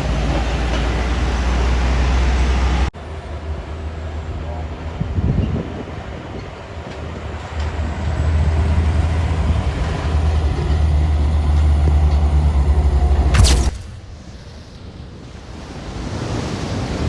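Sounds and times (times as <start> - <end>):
sharp crack: 13.3 - 14.8.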